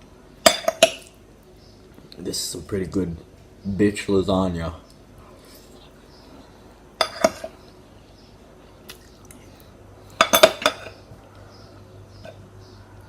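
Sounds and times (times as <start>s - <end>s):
cutlery clinking on a plate: 0.4s - 1.1s, 7.0s - 7.5s, 10.2s - 11.0s.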